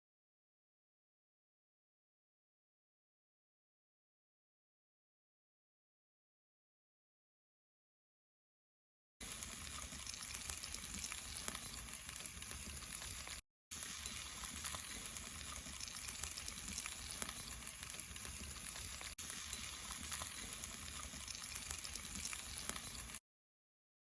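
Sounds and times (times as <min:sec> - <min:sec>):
food sizzling on a grill: 0:09.2 - 0:23.2.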